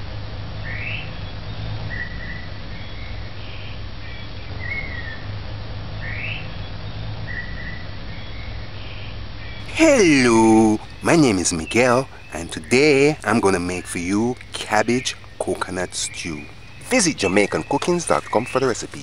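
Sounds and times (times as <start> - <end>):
bird whistling: 9.6 - 19.0
steady low hum: 9.6 - 19.0.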